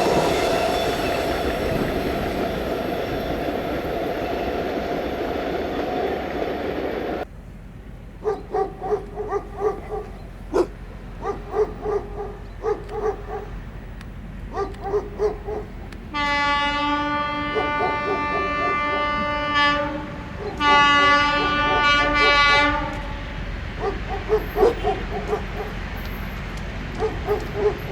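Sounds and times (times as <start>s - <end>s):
locomotive horn blast: 0.0s - 7.2s, 15.8s - 27.9s
train rumbling: 0.0s - 27.9s
dog barking: 8.2s - 13.6s, 14.5s - 15.9s, 17.4s - 19.2s, 20.3s - 22.9s, 23.7s - 25.8s, 26.9s - 27.9s.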